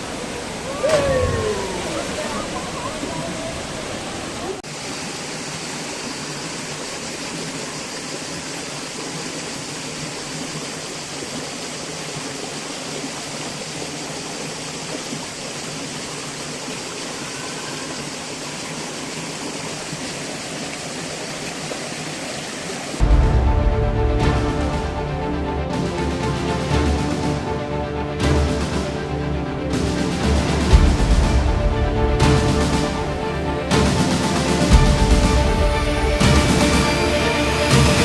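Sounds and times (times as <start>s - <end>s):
waterfall and stream rushing: 0.0s - 38.0s
music: 23.0s - 38.0s.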